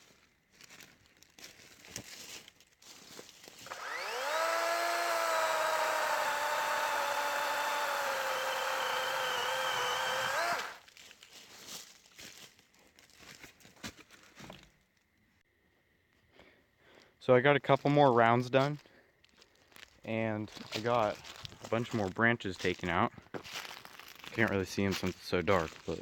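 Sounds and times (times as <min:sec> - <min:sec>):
electric chainsaw cutting wood: 0:03.6 - 0:10.9.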